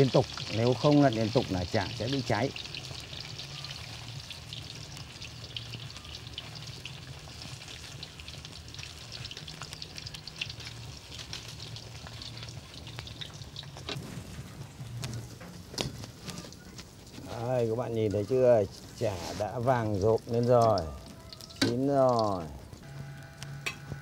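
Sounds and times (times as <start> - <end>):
patties deep-frying in oil: 0.0 - 24.0.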